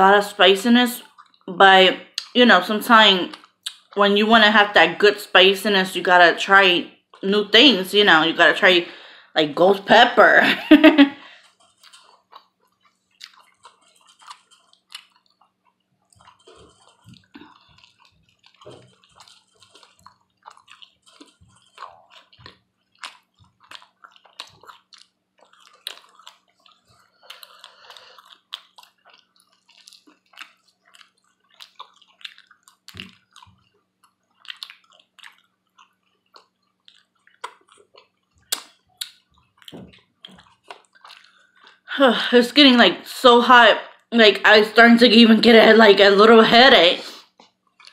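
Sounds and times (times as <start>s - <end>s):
person chewing: 1.0s - 1.5s, 3.3s - 4.0s, 11.2s - 41.9s, 47.1s - 47.9s.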